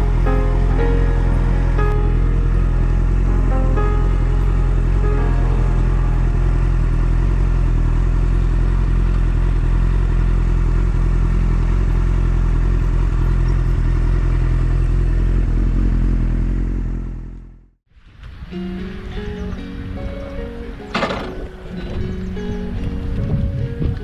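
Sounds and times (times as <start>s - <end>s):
motorcycle engine running: 5.7s - 17.6s
wind and road noise: 18.0s - 24.0s.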